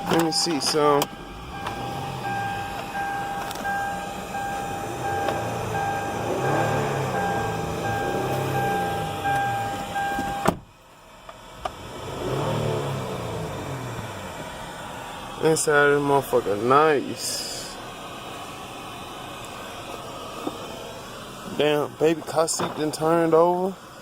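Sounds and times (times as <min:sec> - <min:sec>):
vehicle warning chime beeping: 0:00.0 - 0:10.6
steady tone: 0:00.0 - 0:10.7.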